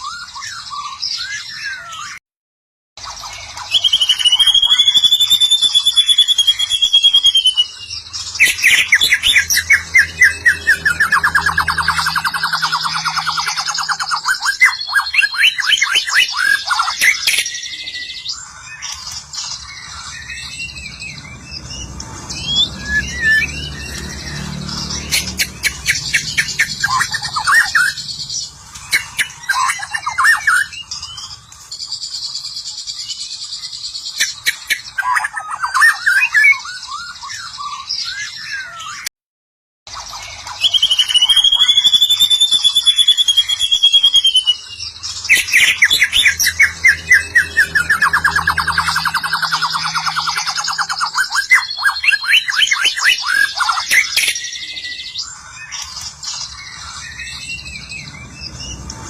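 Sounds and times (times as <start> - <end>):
songbird singing whistled song: 0.0 - 2.2, 3.0 - 39.1, 39.9 - 59.0.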